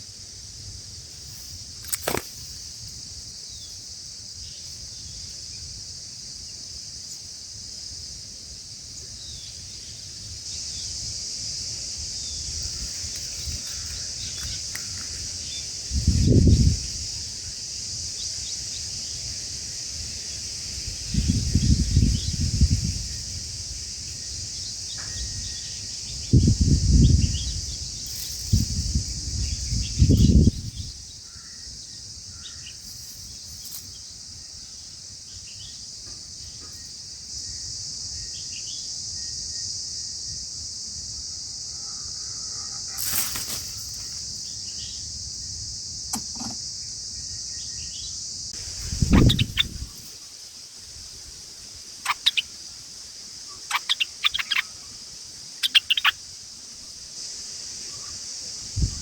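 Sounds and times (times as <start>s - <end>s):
high-pitched insect drone: 0.0s - 59.0s
short bird chirps: 49.0s - 50.0s, 52.1s - 52.5s, 53.5s - 54.7s, 55.6s - 56.2s.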